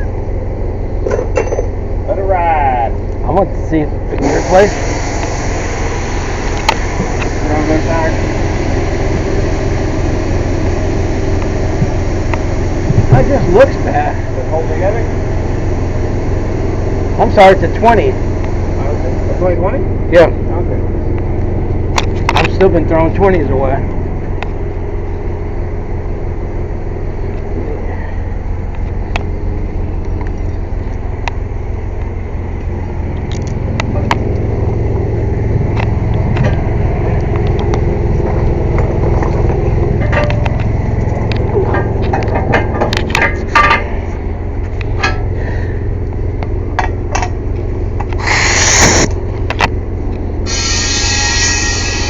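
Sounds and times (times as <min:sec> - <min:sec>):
air compressor humming: 0:00.0 - 0:52.0
tire tools clanking on metal: 0:01.0 - 0:01.9, 0:35.8 - 0:45.7, 0:46.6 - 0:49.7
compressed air hiss: 0:04.2 - 0:08.3, 0:48.2 - 0:49.1, 0:50.5 - 0:52.0.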